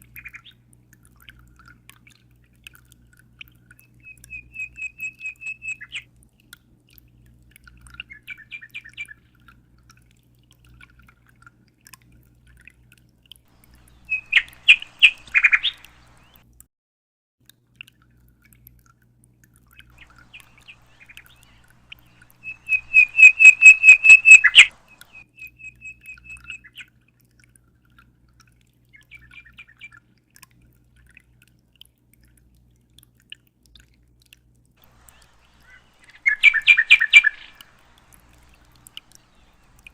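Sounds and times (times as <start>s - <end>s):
songbird trilling: 13.6s - 16.4s, 20.0s - 25.2s, 34.8s - 39.9s.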